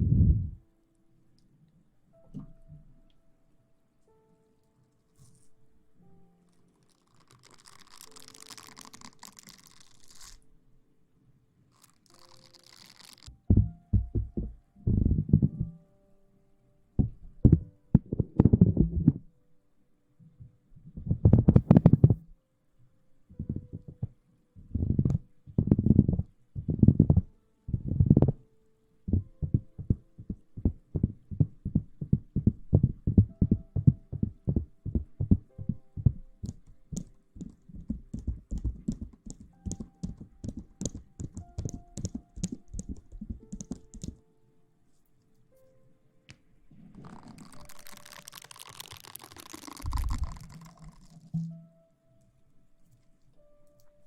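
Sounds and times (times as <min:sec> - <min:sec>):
rustling against microphone: 0:11.7 - 0:15.8, 0:29.2 - 0:44.2, 0:46.6 - 0:51.7.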